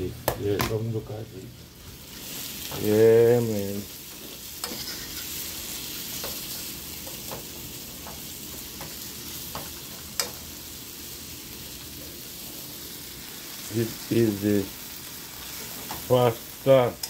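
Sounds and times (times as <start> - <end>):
food sizzling in a skillet: 1.0 - 17.0
fork clicking against pan: 8.8 - 10.4.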